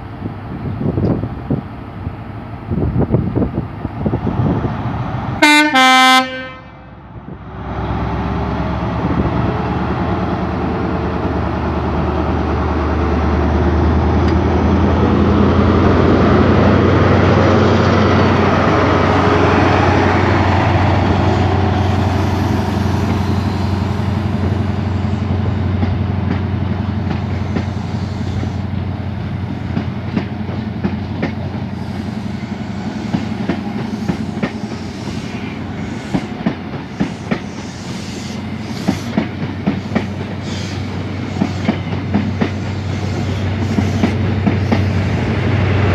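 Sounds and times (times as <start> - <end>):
rail rumble: 0.0 - 45.9
train engine drone: 0.0 - 45.9
train horn blast: 5.4 - 7.0.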